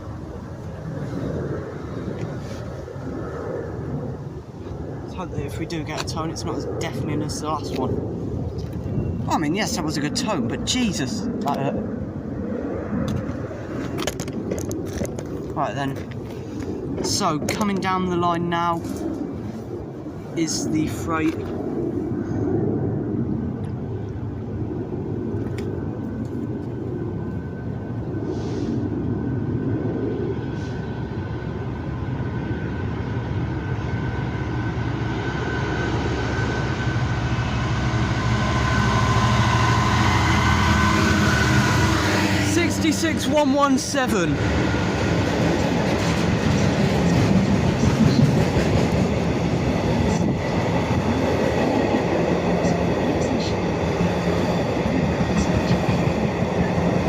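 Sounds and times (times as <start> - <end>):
freight train passing: 0.0 - 57.0
thin steady whine: 0.0 - 57.0
diesel locomotive rumble: 25.8 - 57.0.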